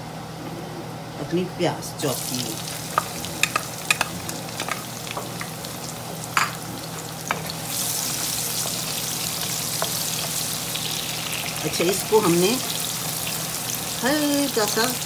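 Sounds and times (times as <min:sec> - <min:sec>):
onions sizzling in hot oil: 0:02.0 - 0:15.0
spatula tapping wok: 0:02.9 - 0:06.6, 0:08.6 - 0:10.7.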